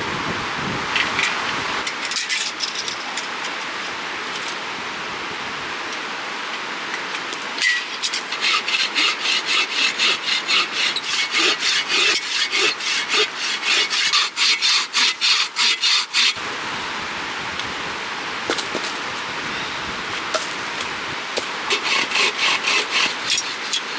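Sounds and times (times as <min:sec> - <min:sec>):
hand saw cutting a log: 0:08.2 - 0:16.4, 0:20.4 - 0:23.9.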